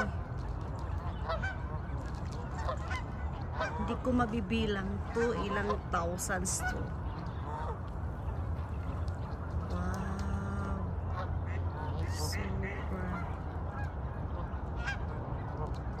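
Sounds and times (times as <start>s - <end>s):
geese honking: 0.0s - 16.0s
steady low rumble: 0.0s - 16.0s.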